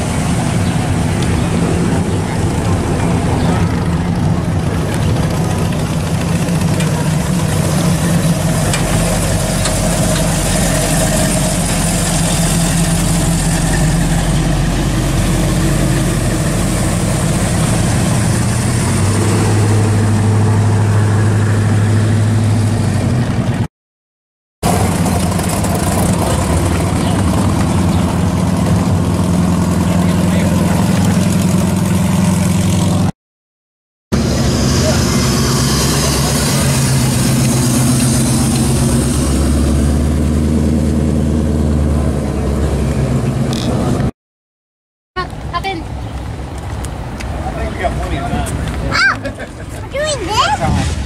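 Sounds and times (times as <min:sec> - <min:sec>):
car engines idling: 0:00.0 - 0:23.7, 0:24.6 - 0:33.1, 0:45.2 - 0:50.6.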